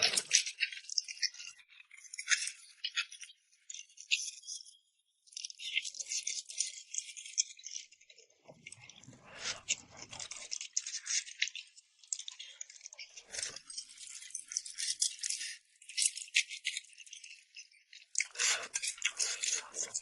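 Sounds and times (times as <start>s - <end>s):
chopsticks stirring noodles in bowl: 0.0s - 4.7s, 5.3s - 20.0s.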